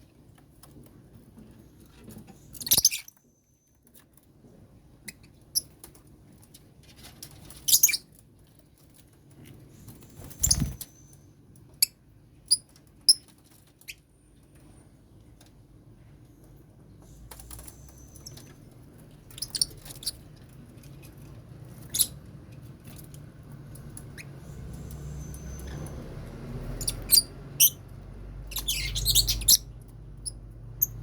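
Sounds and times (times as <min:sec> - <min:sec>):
lovebirds screeching: 0:10.1 - 0:11.0, 0:19.3 - 0:20.3, 0:26.6 - 0:27.8, 0:28.4 - 0:31.0.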